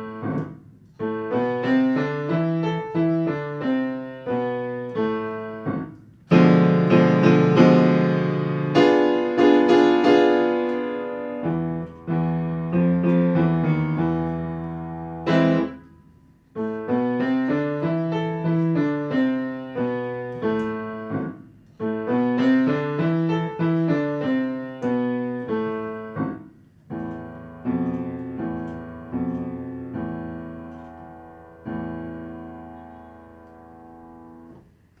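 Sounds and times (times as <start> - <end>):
eerie piano piece: 0.0 - 35.0.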